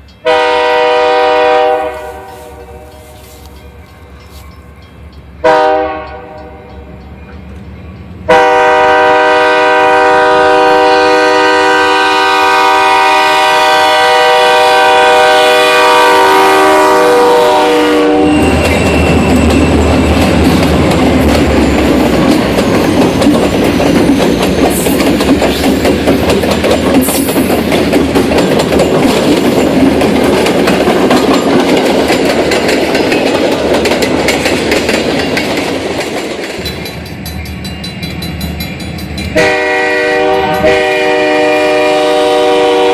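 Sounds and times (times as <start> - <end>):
locomotive air horn: 0.2 - 3.5, 5.4 - 6.6, 8.3 - 18.6, 39.4 - 42.9
wheels clacking over rail joints: 18.2 - 41.0.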